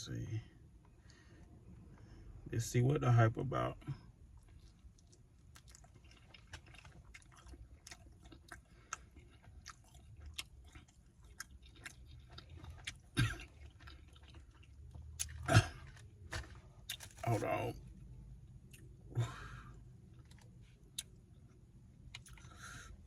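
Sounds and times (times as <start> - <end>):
person chewing: 4.3 - 17.8, 19.7 - 23.0.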